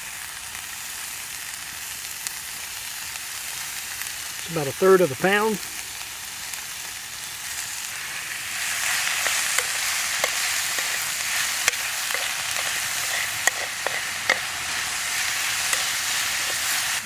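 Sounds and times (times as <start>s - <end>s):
meat sizzling in a frying pan: 0.0s - 17.0s.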